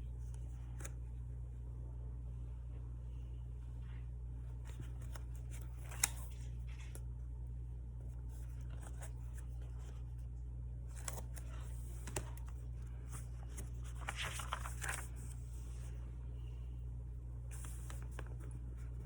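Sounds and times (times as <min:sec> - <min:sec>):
steady low hum: 0:00.0 - 0:19.0
paper rustling: 0:04.5 - 0:07.1, 0:08.1 - 0:10.2, 0:10.9 - 0:16.5, 0:17.4 - 0:19.0.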